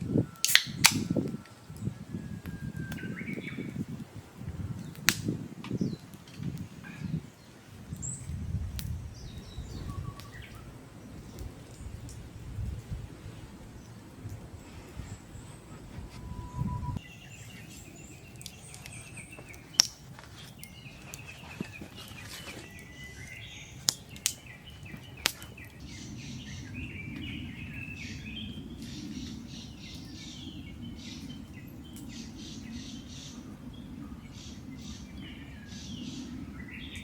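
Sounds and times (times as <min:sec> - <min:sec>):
birds chirping: 0:00.0 - 0:05.0, 0:05.7 - 0:37.0
low steady rushing noise: 0:08.5 - 0:18.3.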